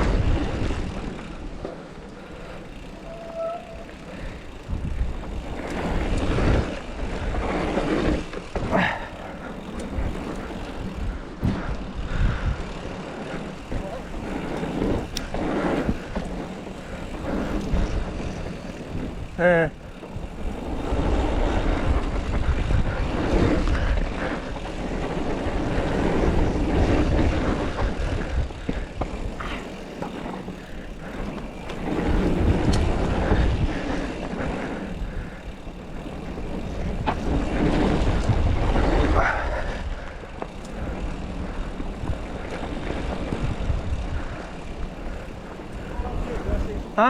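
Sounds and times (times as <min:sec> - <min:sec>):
bike tyres rolling on dirt: 0:00.0 - 0:47.0
wind buffeting microphone: 0:00.0 - 0:47.0
bike knocks and rattles: 0:02.7 - 0:12.8, 0:13.4 - 0:39.2.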